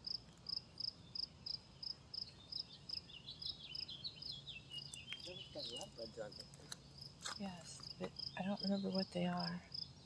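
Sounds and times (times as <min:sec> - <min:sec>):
cricket chirping: 0:00.0 - 0:10.0.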